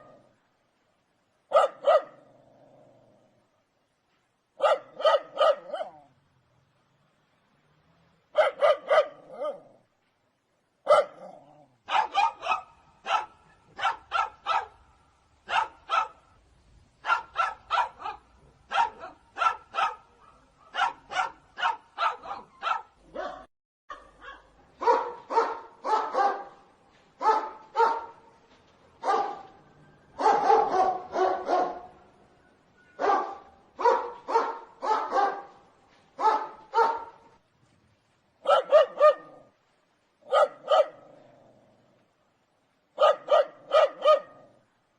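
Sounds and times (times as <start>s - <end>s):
dogs barking: 1.5s - 2.2s, 4.6s - 6.0s, 8.4s - 9.7s, 10.9s - 14.8s, 15.5s - 16.2s, 17.0s - 26.6s, 27.2s - 28.2s, 29.0s - 29.6s, 30.2s - 32.0s, 33.0s - 35.5s, 36.2s - 37.3s, 38.4s - 39.4s, 40.2s - 41.1s, 43.0s - 44.5s.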